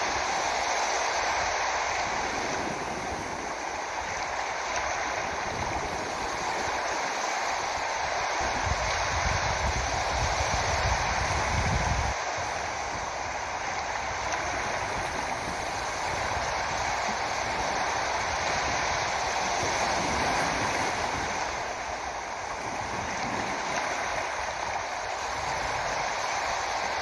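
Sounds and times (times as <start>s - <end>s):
rushing water: 0.0s - 27.0s.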